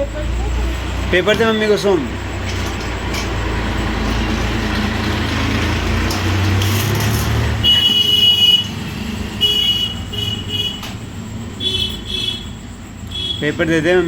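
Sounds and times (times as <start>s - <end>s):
traffic rumble: 0.0s - 14.0s
high-pitched horn tone: 7.6s - 8.8s.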